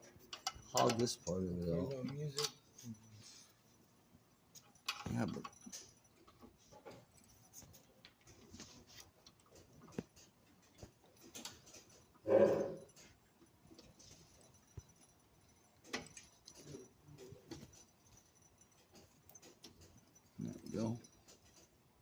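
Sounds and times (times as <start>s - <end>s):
metal parts clicking and knocking: 0.0s - 3.1s, 4.5s - 22.0s.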